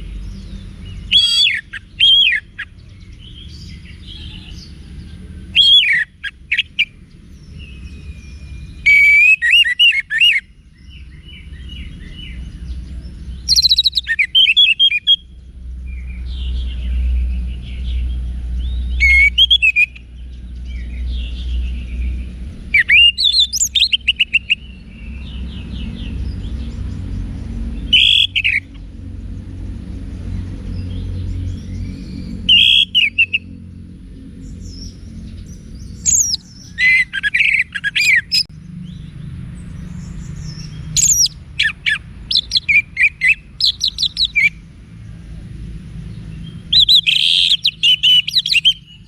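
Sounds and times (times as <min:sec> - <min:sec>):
soft bird twittering: 0:00.0 - 0:45.3, 0:46.0 - 0:49.0
thrush whistled song: 0:05.6 - 0:06.9, 0:07.7 - 0:11.9, 0:13.4 - 0:15.3, 0:18.7 - 0:20.1, 0:22.7 - 0:24.7, 0:27.9 - 0:28.7, 0:32.5 - 0:33.5, 0:36.0 - 0:38.5, 0:40.5 - 0:44.6, 0:46.7 - 0:49.0
steady low rumble: 0:15.2 - 0:47.1.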